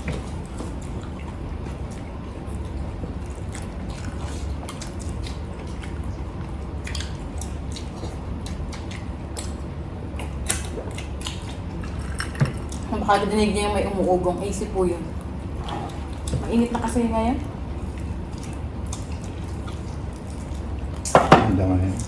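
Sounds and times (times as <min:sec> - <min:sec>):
wet chewing and mouth smacks: 0:00.0 - 0:12.9, 0:17.7 - 0:21.1
air conditioner hum: 0:00.0 - 0:22.0.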